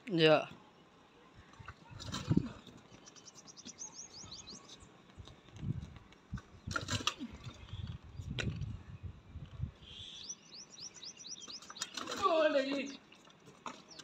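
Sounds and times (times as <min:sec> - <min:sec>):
bird rapid high chirps: 0:02.9 - 0:04.9, 0:09.8 - 0:12.2.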